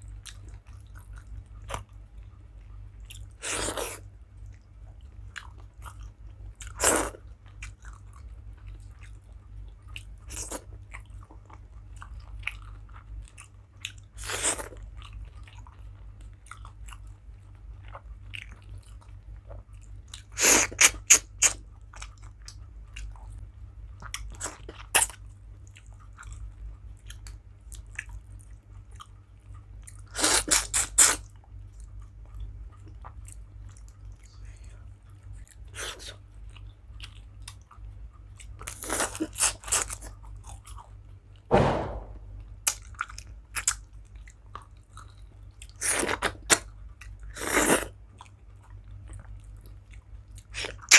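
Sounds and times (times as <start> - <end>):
steady low hum: 0.0 - 30.1, 40.0 - 45.8
close-up chewing: 0.0 - 41.5, 42.6 - 50.9.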